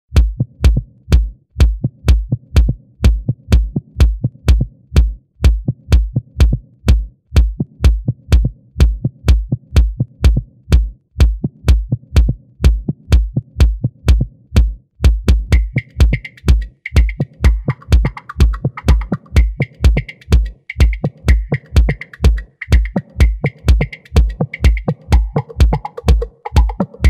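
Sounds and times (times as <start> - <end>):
electronic dance music: 15.5 - 27.0.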